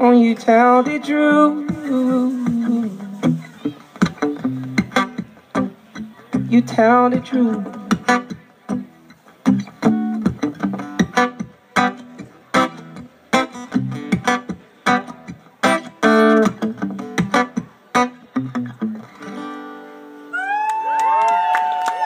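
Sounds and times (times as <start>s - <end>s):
guitar strumming: 0.0s - 20.3s
audience whooping and cheering: 20.3s - 22.0s.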